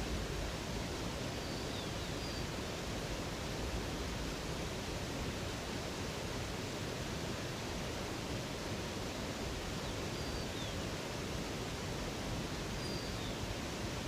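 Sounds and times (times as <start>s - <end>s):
flowing river water: 0.0s - 14.0s
faint bird chirps: 12.8s - 13.4s.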